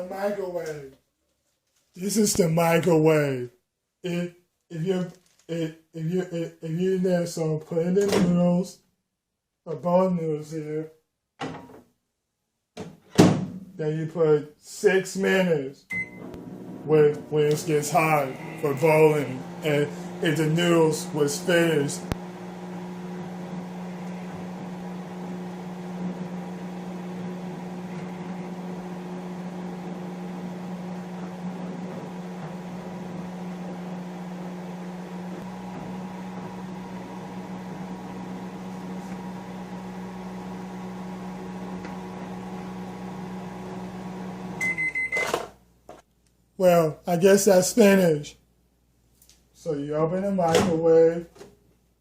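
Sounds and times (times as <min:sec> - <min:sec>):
short high microwave beep: 0:15.9 - 0:16.2, 0:44.6 - 0:45.3
microwave oven humming: 0:15.9 - 0:45.3.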